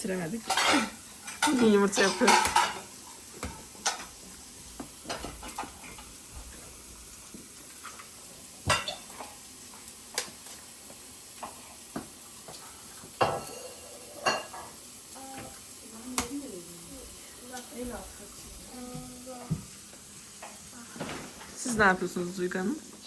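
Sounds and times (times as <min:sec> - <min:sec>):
food sizzling: 0:00.0 - 0:23.0
metal utensils clinking on pan: 0:00.4 - 0:04.1, 0:05.0 - 0:06.1, 0:08.7 - 0:09.4, 0:13.2 - 0:14.8.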